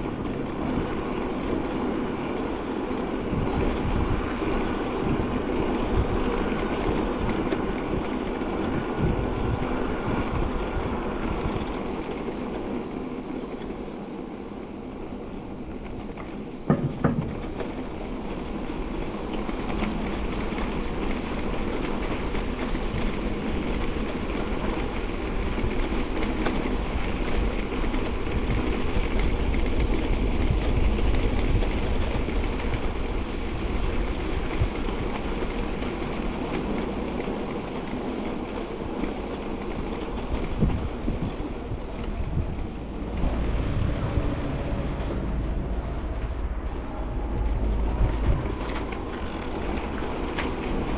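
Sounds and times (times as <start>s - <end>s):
bicycle tyres rolling on path: 0.0s - 50.9s
wind on microphone: 2.9s - 12.6s, 15.4s - 50.9s
bicycle frame rattling: 48.0s - 50.9s.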